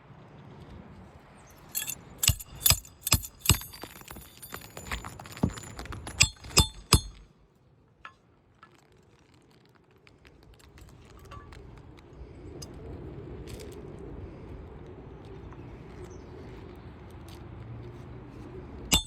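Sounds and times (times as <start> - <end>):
hammer striking roofing nails: 2.2 - 7.2.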